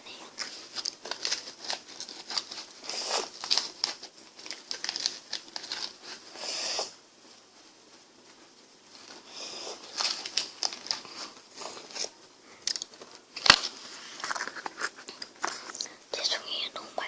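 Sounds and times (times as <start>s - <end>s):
packaging crinkling and tearing: 0.4s - 6.3s, 9.3s - 15.9s.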